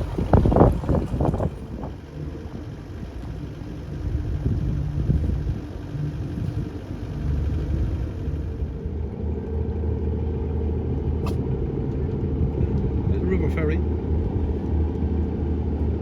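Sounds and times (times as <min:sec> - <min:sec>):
boat engine humming: 0:00.0 - 0:11.8.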